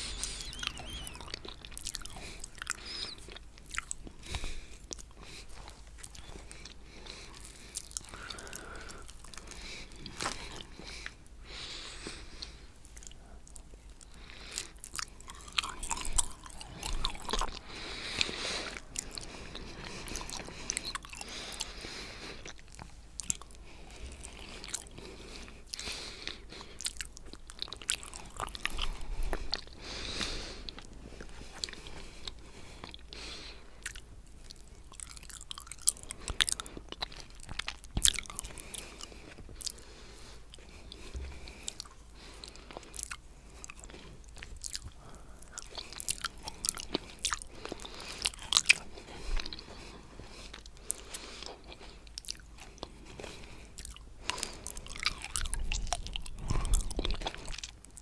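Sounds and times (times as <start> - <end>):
mouth smacks and clicks: 0.0 - 11.2, 12.1 - 25.0, 50.4 - 58.0
chewing and wet mouth sounds: 0.0 - 58.0.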